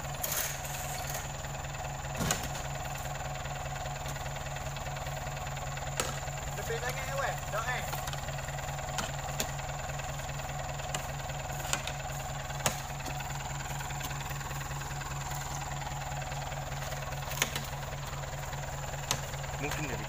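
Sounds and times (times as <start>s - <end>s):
lorry engine idling: 0.0s - 20.0s
heavy thuds on lorry bed: 2.0s - 7.1s.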